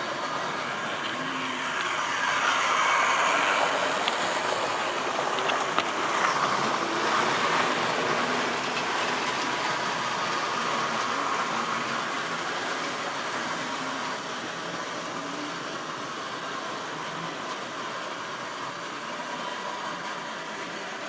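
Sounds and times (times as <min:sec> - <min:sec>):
motor whirring: 0:00.0 - 0:15.6
model train wheels rattling: 0:00.0 - 0:21.0.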